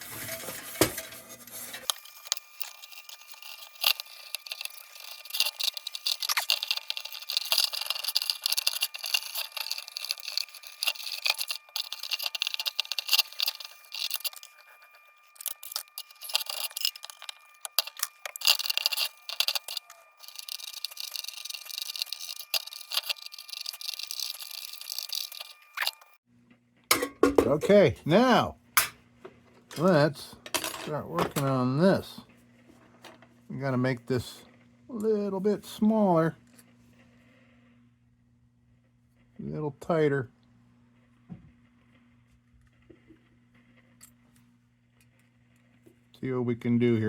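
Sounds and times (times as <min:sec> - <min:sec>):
steel wool scrubbing metal: 0:00.0 - 0:26.2.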